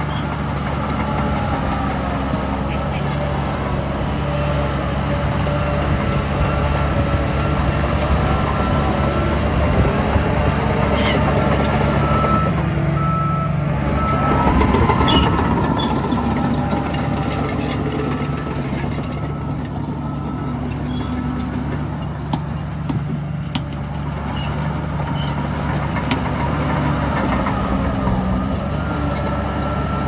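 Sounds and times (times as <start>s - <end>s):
heavy diesel machinery running: 0.0s - 30.0s
reverse warning beeps: 11.1s - 21.3s.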